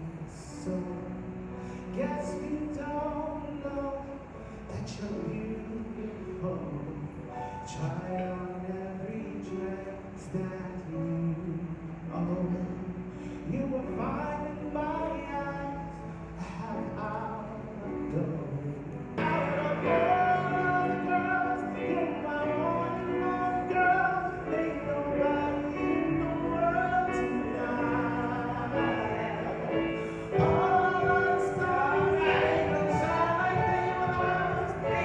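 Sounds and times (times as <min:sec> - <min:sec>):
voices singing with music: 0:19.2 - 0:35.0.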